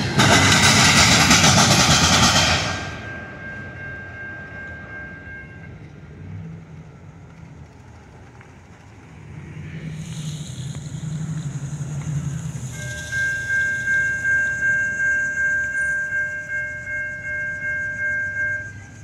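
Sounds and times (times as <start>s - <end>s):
low rumble: 0.0s - 17.3s
freight train cars rolling past: 0.0s - 19.0s
faint high ringing: 1.4s - 7.0s, 10.1s - 19.0s.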